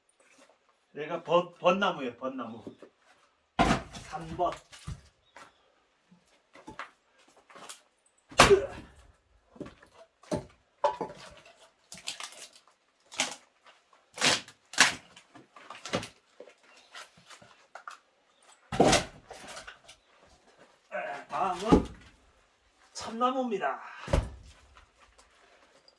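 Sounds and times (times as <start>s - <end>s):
axe splitting firewood: 3.6s - 5.0s, 8.3s - 9.0s, 14.2s - 16.1s, 18.7s - 19.8s, 21.1s - 22.2s, 24.0s - 24.8s.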